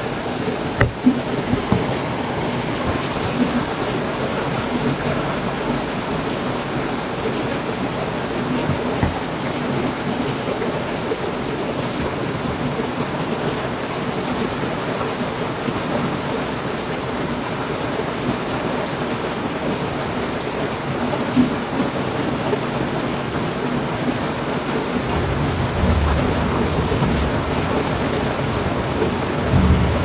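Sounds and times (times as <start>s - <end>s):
heavy rain falling: 0.0s - 30.0s
low rumble of thunder: 25.0s - 30.0s.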